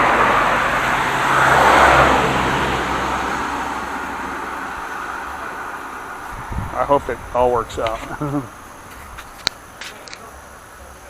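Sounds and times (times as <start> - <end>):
vehicle passing by: 0.0 - 8.8.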